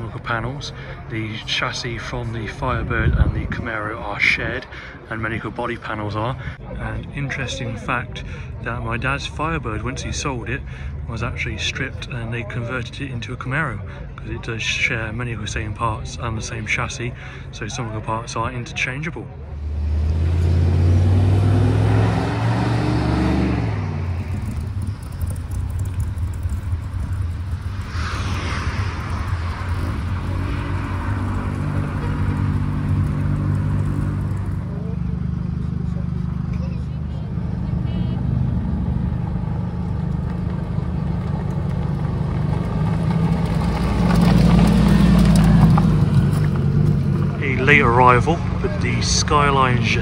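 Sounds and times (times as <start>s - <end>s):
car engine running: 19.5s - 50.0s.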